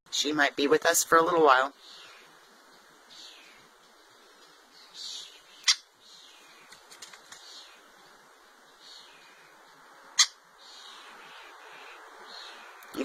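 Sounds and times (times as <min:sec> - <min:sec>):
bird chirping: 0:01.7 - 0:13.0
sharp loud bird chip: 0:05.6 - 0:05.9.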